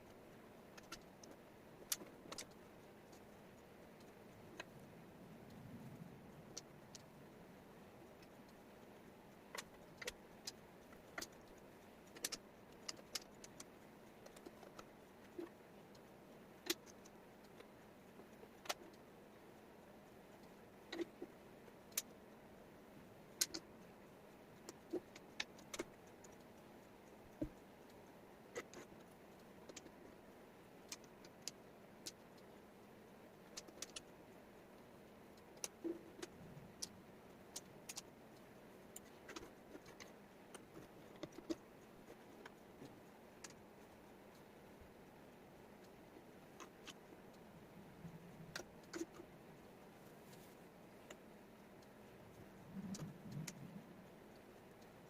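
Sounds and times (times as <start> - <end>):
faint steady hiss: 0.0 - 55.0
wooden puzzle pieces clicking: 9.5 - 15.5, 33.4 - 34.1.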